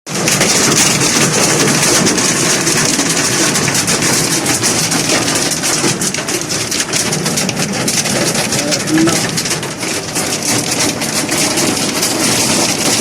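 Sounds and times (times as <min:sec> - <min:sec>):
heavy rain pouring: 0:00.1 - 0:13.0.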